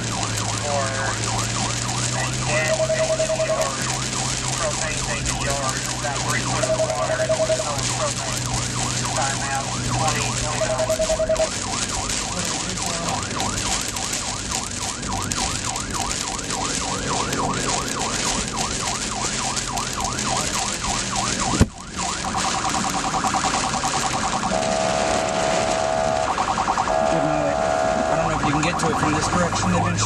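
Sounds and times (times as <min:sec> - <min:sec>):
emergency siren yelping: 0:00.0 - 0:30.0.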